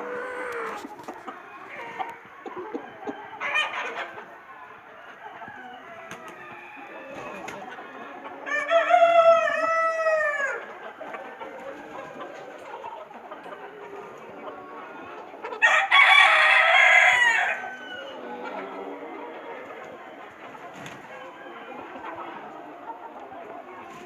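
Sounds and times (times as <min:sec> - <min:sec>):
chickens clucking: 0:00.0 - 0:24.0
rooster crowing: 0:08.5 - 0:10.6, 0:15.6 - 0:18.2.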